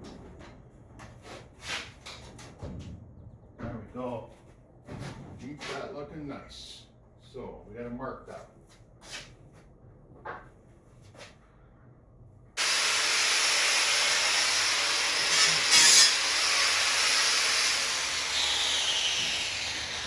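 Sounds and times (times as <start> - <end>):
metal grinding tool: 12.6 - 20.0.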